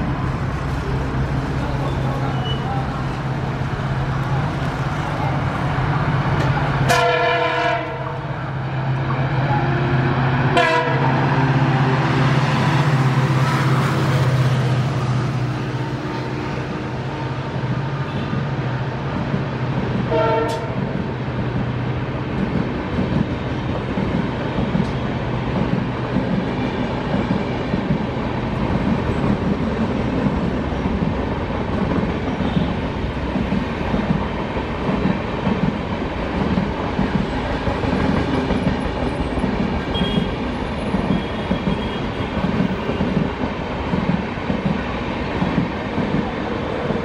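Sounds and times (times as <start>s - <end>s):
train horn: 6.8s - 8.2s, 9.4s - 12.1s, 20.1s - 20.8s, 39.9s - 40.4s.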